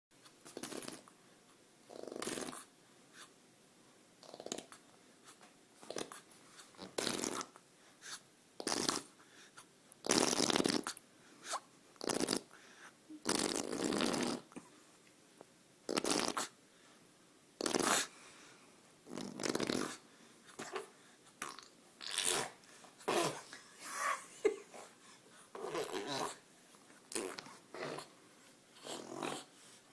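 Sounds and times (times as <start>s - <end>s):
baby making spluttering mouth sounds: 0.4s - 1.1s, 15.9s - 16.5s, 20.6s - 23.4s, 27.1s - 28.1s.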